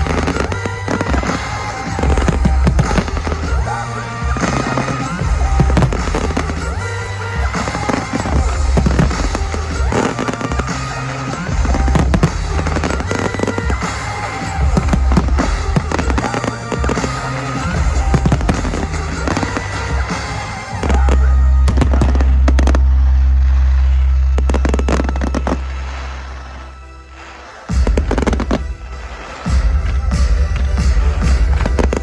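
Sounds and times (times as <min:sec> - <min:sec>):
fireworks bursting and crackling: 0:00.0 - 0:32.0
rap music with heavy bass: 0:00.0 - 0:32.0
long deep bass note: 0:20.8 - 0:26.6.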